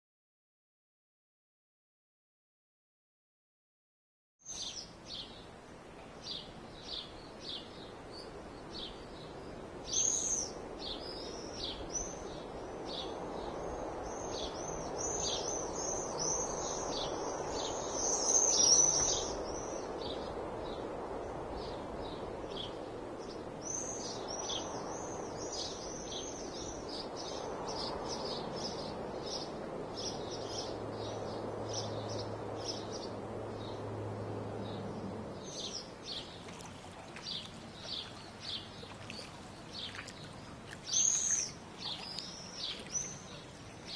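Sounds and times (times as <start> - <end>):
birds chirping and singing: 12.9 - 20.8, 35.4 - 43.9.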